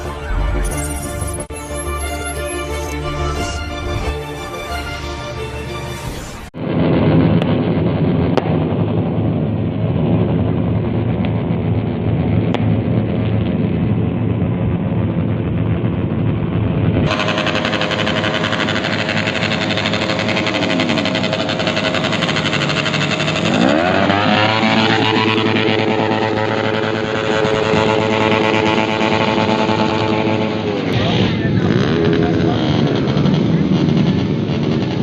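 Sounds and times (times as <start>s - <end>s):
motorcycle engines revving: 9.4s - 35.0s.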